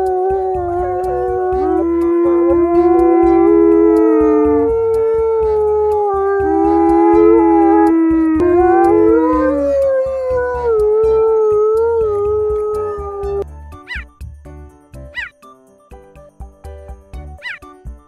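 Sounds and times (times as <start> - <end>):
dogs howling: 0.0 - 14.0
backing music: 0.0 - 18.0.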